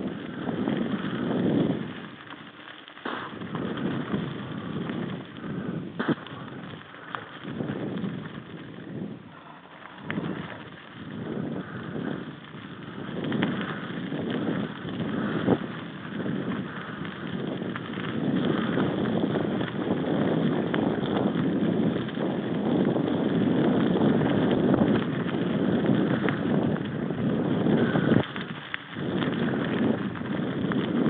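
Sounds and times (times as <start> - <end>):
wind buffeting microphone: 0.0 - 2.4, 3.2 - 31.0.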